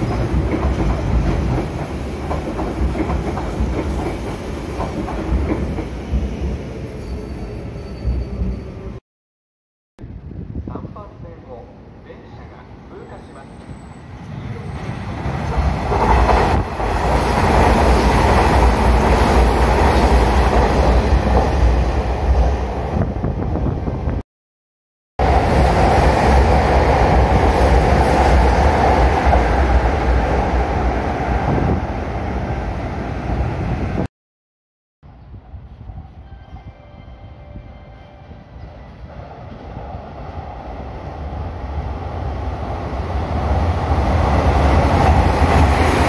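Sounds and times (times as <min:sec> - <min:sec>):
train wheels rumbling on rails: 0:00.0 - 0:06.7.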